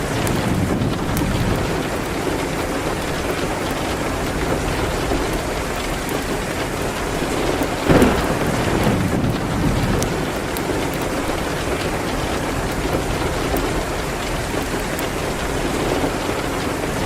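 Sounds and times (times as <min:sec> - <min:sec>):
rain against a window: 0:00.0 - 0:17.0
wood fire crackling: 0:00.0 - 0:17.0.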